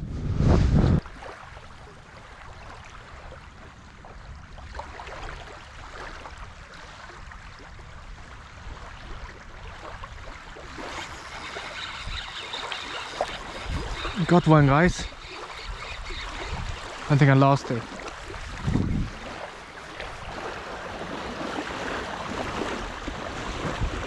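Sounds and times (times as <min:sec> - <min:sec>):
wind buffeting microphone: 0:00.0 - 0:01.2, 0:13.2 - 0:17.2, 0:18.0 - 0:24.0
small waves lapping: 0:01.0 - 0:24.0.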